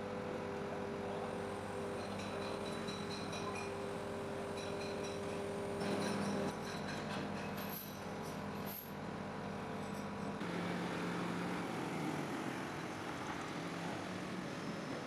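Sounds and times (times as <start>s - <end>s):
diesel engine running: 10.4s - 15.0s.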